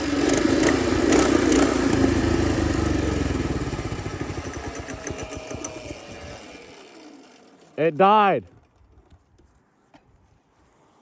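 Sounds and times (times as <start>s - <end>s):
small engine running and dying: 0.0s - 7.8s.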